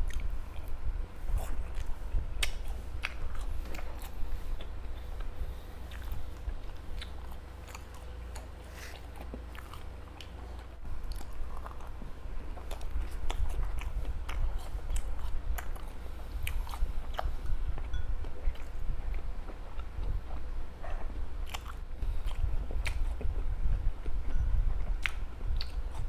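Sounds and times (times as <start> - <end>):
chewing soft food: 0.0 - 26.0
wet mouth clicks: 1.7 - 3.9.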